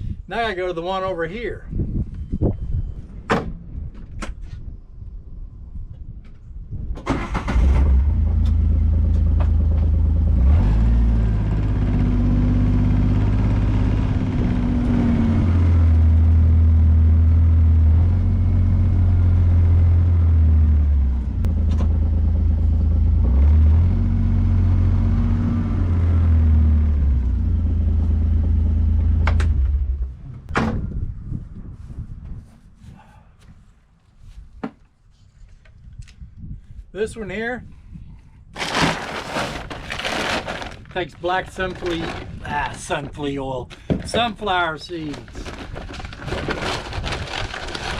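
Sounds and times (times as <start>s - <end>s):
vehicle engine starting and running: 7.0s - 30.5s.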